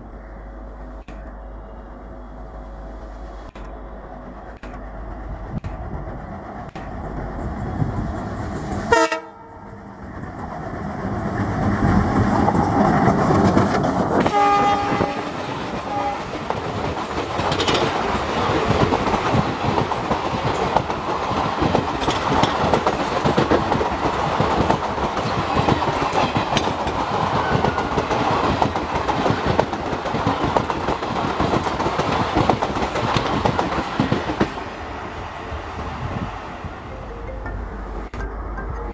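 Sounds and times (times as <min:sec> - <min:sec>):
train horn blast: 0:08.9 - 0:09.7, 0:14.2 - 0:16.3
train wheels clattering over rails: 0:10.1 - 0:34.8.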